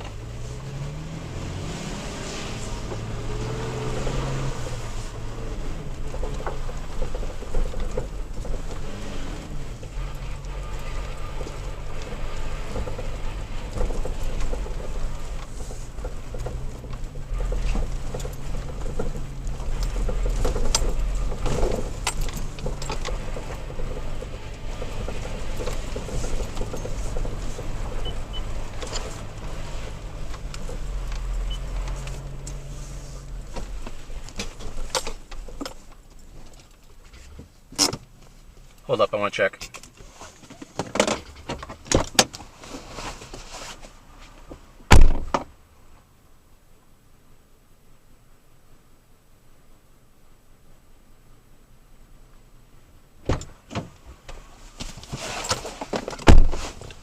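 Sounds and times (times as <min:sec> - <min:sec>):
truck engine humming: 0:00.0 - 0:37.0
rattles and knocks in truck cab: 0:02.6 - 0:38.6, 0:39.6 - 0:45.6, 0:53.2 - 0:57.0
car door clicks and knocks: 0:44.9 - 0:45.5, 0:53.2 - 0:54.0, 0:56.0 - 0:56.6
car door slamming: 0:44.9 - 0:45.5, 0:53.2 - 0:53.9, 0:56.2 - 0:56.8.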